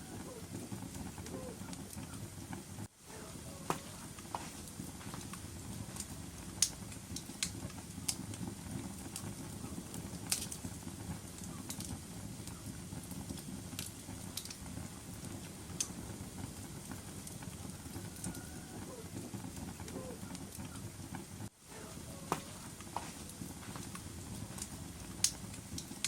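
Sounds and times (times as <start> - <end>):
fire crackling and popping: 0.0 - 26.0
low rumble of flame: 0.0 - 26.0.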